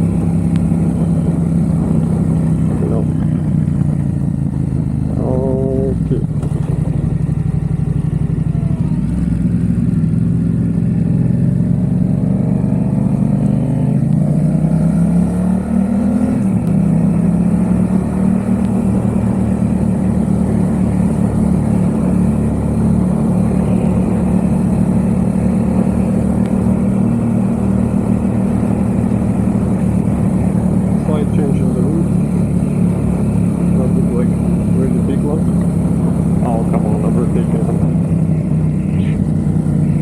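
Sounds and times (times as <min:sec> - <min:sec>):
motorcycle engine while riding: 0:00.0 - 0:40.0.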